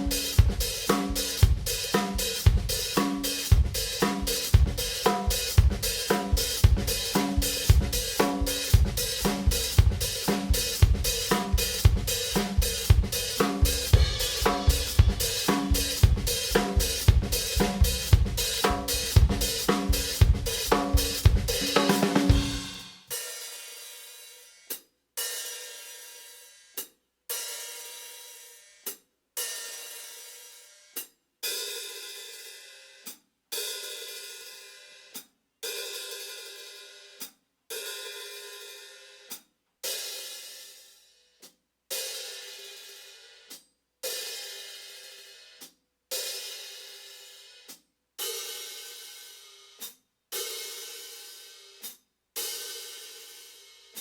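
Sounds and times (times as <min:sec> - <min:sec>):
hi-hat cymbal strokes: 0:00.0 - 0:24.8.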